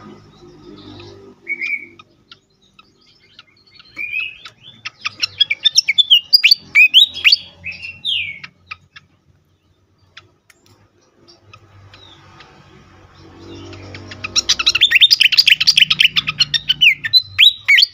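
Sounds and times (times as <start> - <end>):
bird chirping and whistling: 0.6 - 9.0, 13.4 - 17.9
bird clicks: 10.1 - 10.9.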